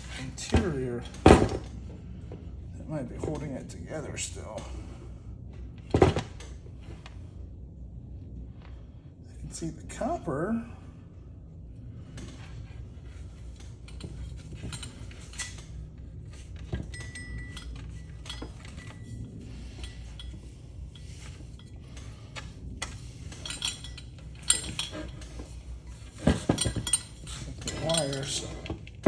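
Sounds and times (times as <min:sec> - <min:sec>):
metal motor parts clinking: 0:13.4 - 0:29.0.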